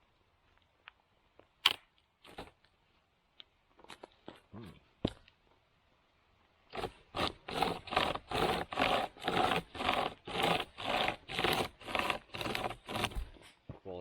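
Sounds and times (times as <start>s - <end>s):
hand chain saw cutting log: 2.3s - 2.6s, 6.7s - 13.4s.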